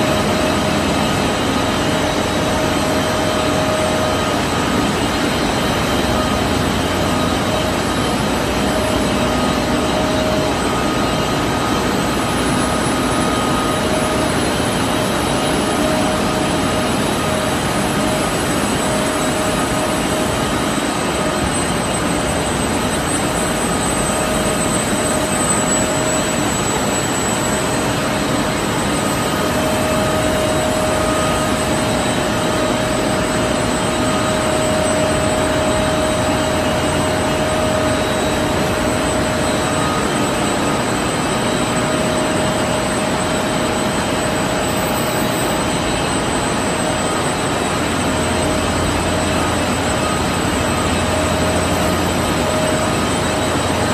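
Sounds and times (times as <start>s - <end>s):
machine whining tones: 0.0s - 53.9s.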